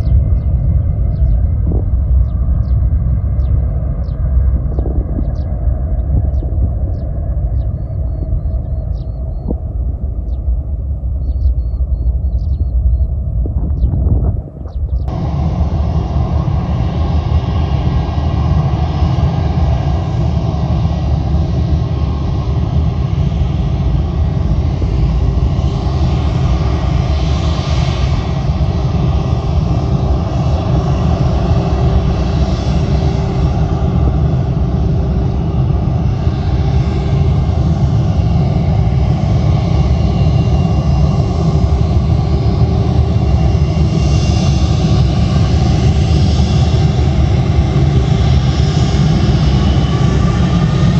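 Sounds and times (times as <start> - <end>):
faint hum: 0.0 - 16.6
jet engines rumbling: 0.0 - 50.9.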